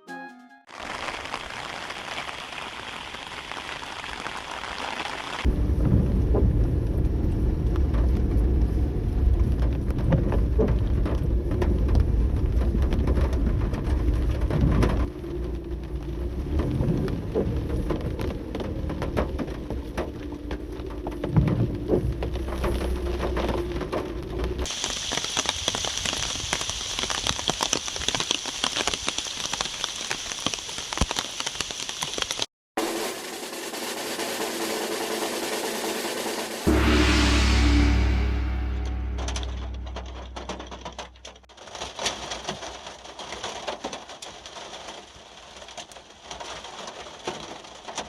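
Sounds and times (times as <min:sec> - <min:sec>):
rain hiss: 0:00.7 - 0:05.6, 0:24.7 - 0:40.5
wind rumbling: 0:01.0 - 0:27.1, 0:36.6 - 0:41.4
raindrops tapping a surface: 0:09.7 - 0:32.5, 0:41.6 - 0:48.0.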